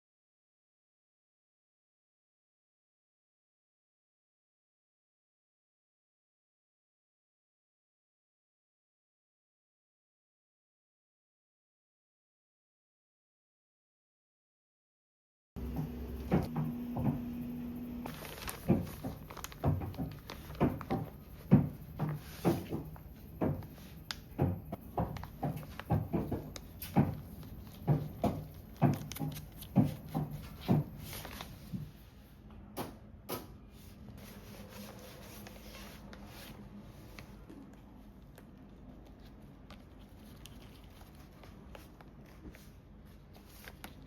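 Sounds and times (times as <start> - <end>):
objects knocking and clunking: 15.6 - 31.9.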